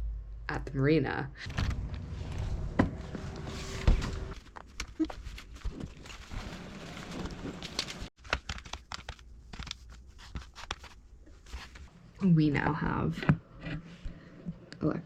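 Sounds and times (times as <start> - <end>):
loud thump: 1.4 - 4.4.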